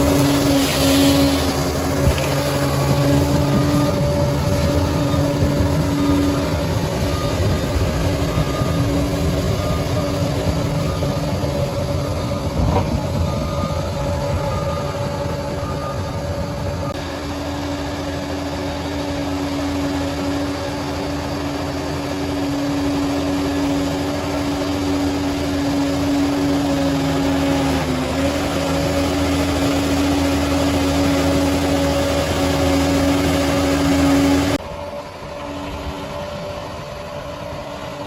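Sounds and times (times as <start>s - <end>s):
bulldozer diesel engine running: 0.0s - 38.0s
constant whine: 0.0s - 38.0s.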